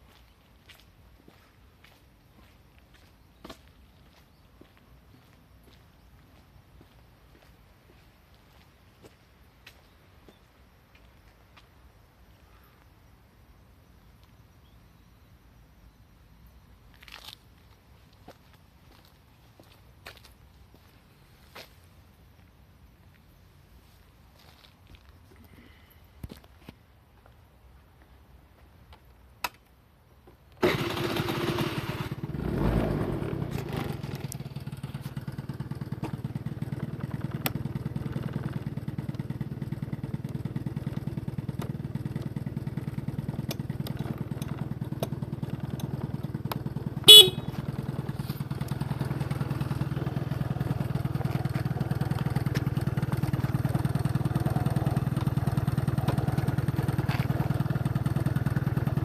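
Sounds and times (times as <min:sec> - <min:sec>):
scooter engine starting and idling: 0:30.5 - 0:59.0
short horn beep: 0:47.1 - 0:47.6.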